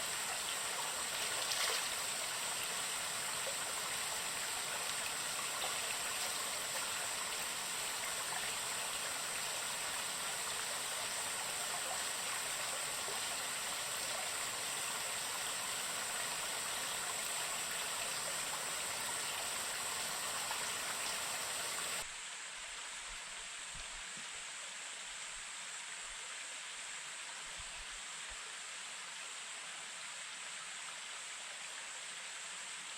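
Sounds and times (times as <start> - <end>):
rushing water: 0.0 - 32.9.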